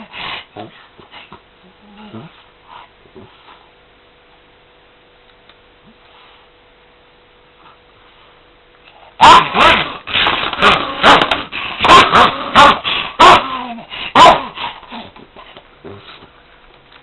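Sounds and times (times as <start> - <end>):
dog barking sharply: 9.2 - 10.0, 10.6 - 13.5, 14.2 - 14.6.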